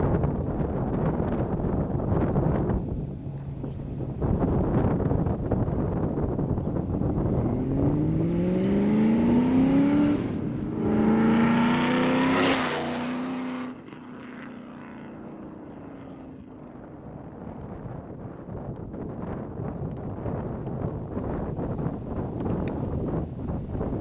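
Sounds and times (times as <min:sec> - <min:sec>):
car engine accelerating: 0:00.8 - 0:16.4.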